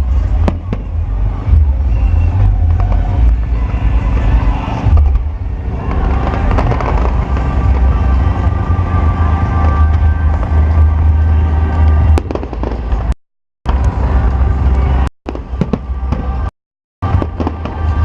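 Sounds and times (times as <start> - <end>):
fireworks rumbling: 0.0 - 18.0
music: 0.0 - 18.0
fireworks cracks: 4.7 - 8.5, 11.8 - 18.0.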